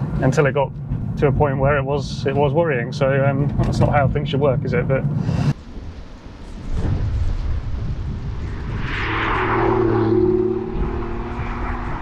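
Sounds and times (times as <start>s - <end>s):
road and wind noise: 0.0s - 12.0s
car engine droning: 7.9s - 12.0s.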